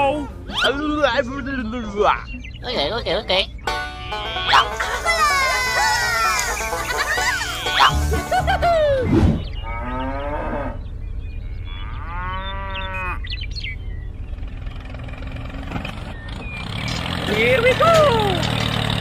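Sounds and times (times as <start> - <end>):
low engine hum: 1.1 - 19.0
cow mooing: 9.6 - 10.8, 11.4 - 13.3.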